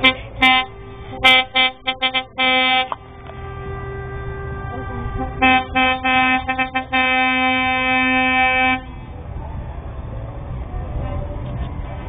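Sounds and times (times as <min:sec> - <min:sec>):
lorry air horns blasting: 0:00.0 - 0:09.0
low engine rumble: 0:00.0 - 0:12.0.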